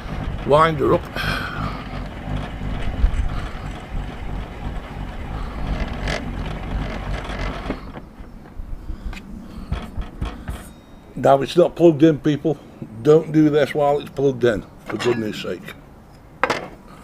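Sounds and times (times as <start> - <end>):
saw handwheel winding: 0.0 - 8.3.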